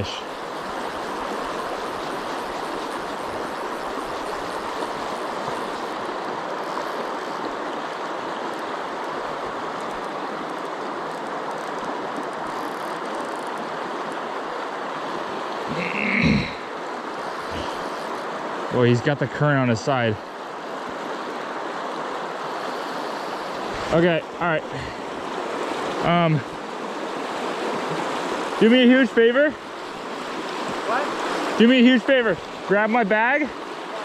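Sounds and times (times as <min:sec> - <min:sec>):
river water rushing: 0:00.0 - 0:34.0
person exclaiming: 0:15.7 - 0:16.6.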